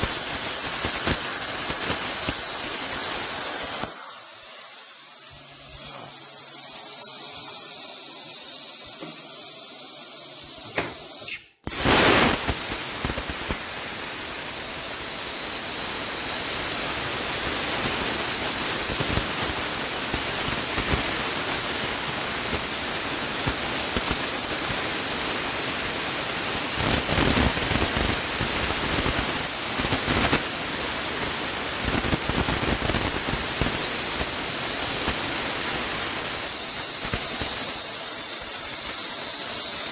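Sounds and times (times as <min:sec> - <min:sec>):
plasma cutter torch hissing: 0:00.0 - 0:39.9.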